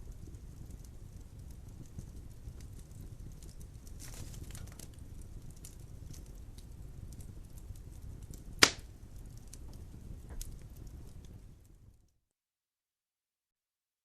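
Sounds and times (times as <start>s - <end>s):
wood logs burning: 0.0s - 12.2s
loud sharp pop of fire: 8.4s - 8.9s.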